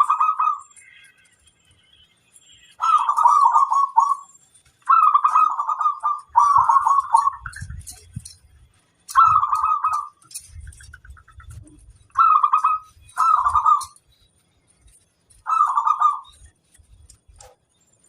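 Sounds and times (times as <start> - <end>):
dove cooing: 0.0 - 0.8, 2.8 - 8.1, 9.1 - 14.0, 15.4 - 16.4.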